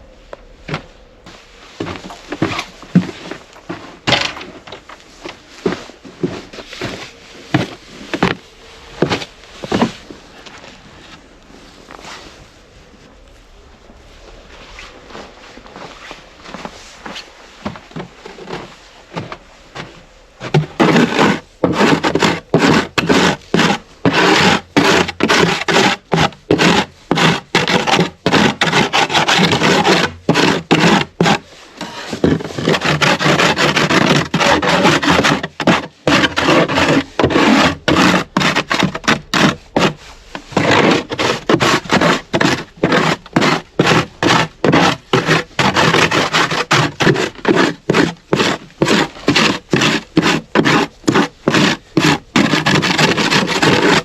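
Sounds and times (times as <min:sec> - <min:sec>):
hand tool scraping wood: 0:00.7 - 0:11.2, 0:15.8 - 0:54.0.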